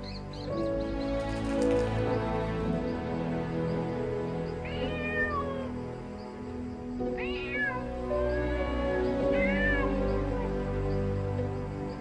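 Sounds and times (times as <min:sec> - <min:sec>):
soft background music: 0:00.0 - 0:12.0
animal calling with falling pitch: 0:07.2 - 0:10.6.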